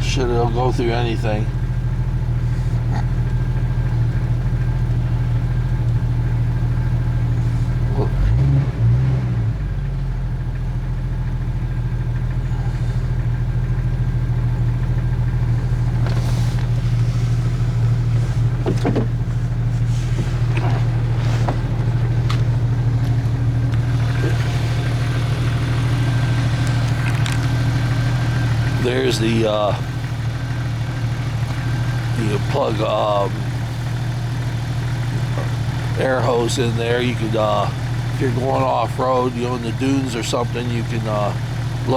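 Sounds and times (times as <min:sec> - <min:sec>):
car engine idling: 0:00.0 - 0:41.9
light clicks and knocks: 0:18.3 - 0:24.5.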